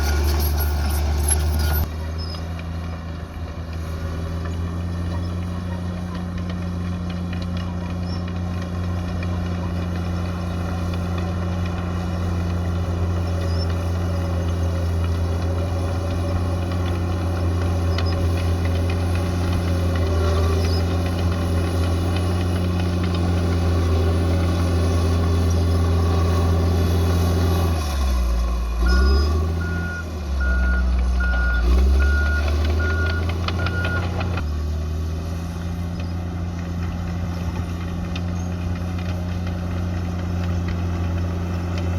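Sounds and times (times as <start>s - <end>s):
bulldozer diesel engine: 0.0s - 41.9s
reversing alarm beeps: 28.8s - 34.1s.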